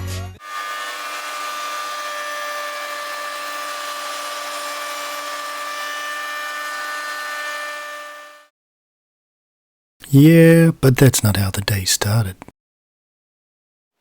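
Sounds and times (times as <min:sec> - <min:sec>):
router whining at high speed: 0:00.4 - 0:08.5.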